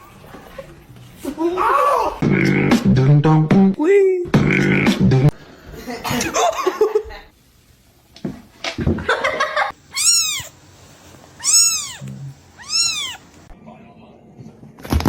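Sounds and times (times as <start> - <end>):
cat meowing: 9.9 - 10.6, 11.4 - 13.3.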